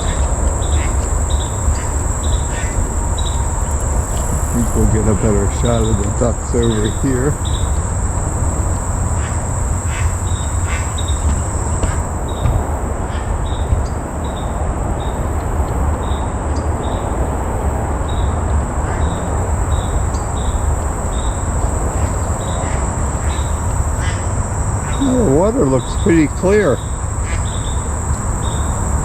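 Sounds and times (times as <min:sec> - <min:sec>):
loud low rumble: 0:00.0 - 0:12.9
insects droning and chirping: 0:00.0 - 0:29.0.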